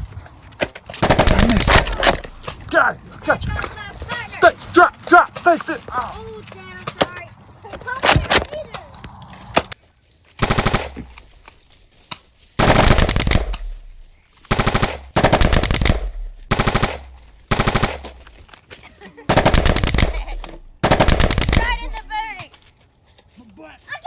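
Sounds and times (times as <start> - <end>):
automatic gunfire bursts: 1.0 - 2.4, 10.4 - 11.3, 12.6 - 18.4, 19.3 - 22.3.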